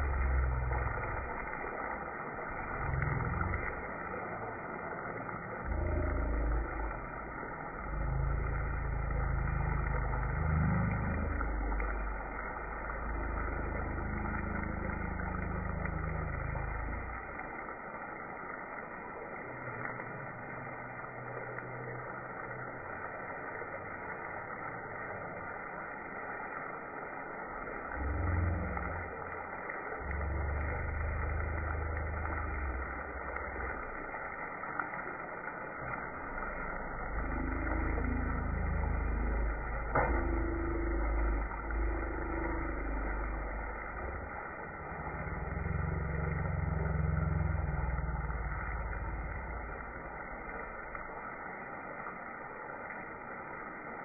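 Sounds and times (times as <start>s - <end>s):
meat and onions sizzling: 0.0s - 54.0s.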